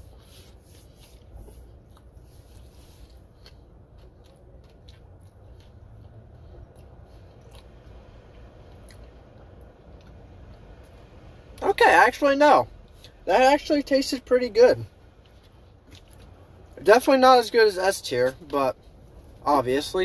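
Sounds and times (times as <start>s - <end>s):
person chewing food: 0.0s - 11.1s, 15.2s - 16.8s
low steady hum: 0.0s - 20.0s.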